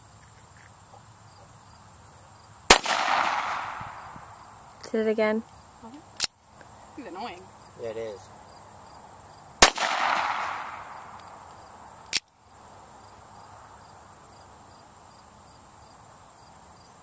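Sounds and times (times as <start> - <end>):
pistol shot echoing: 2.7 - 4.1, 9.6 - 11.2.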